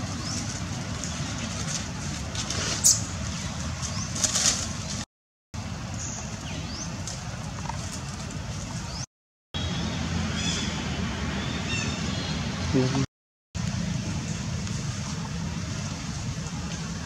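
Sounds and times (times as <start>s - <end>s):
sharp rustling crackles: 0.0s - 5.1s.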